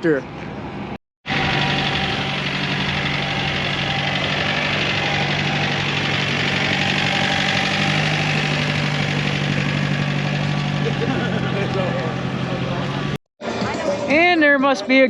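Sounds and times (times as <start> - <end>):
engine idling: 1.3 - 13.2.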